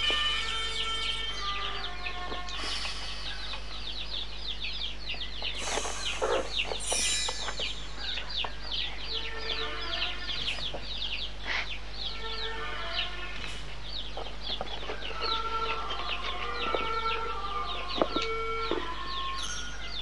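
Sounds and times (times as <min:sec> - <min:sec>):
bird chirping: 0:00.0 - 0:20.0
low electrical hum: 0:00.0 - 0:20.0
loud noisy burst: 0:02.5 - 0:04.2.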